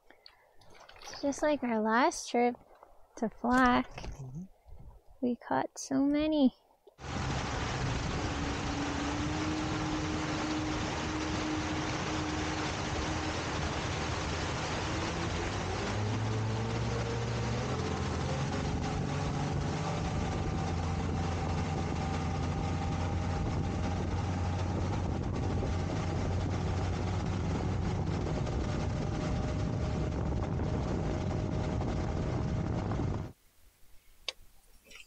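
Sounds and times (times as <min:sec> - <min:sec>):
constant rushing noise: 0:07.0 - 0:33.3
motorboat engine running: 0:07.0 - 0:33.4.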